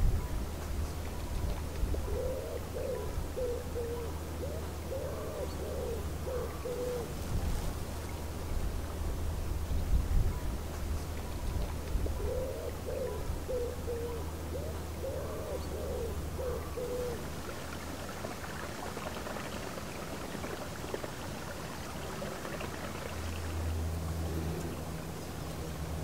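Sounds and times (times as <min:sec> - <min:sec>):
low steady hum: 0:00.0 - 0:26.0
outdoor background hiss: 0:00.0 - 0:26.0
bird cooing: 0:02.0 - 0:07.4, 0:12.2 - 0:23.6, 0:24.2 - 0:25.7.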